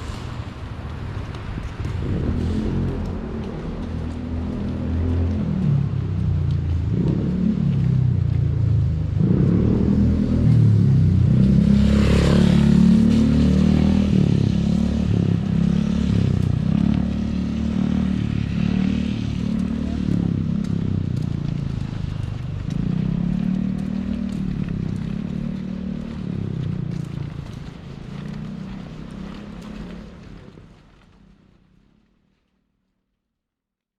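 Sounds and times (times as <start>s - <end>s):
vehicle engine running: 14.7s - 31.3s.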